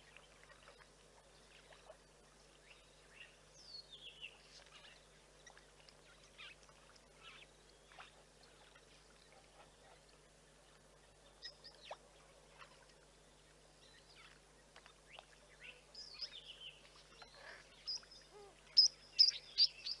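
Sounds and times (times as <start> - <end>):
wild birds chirping: 12.6 - 20.0.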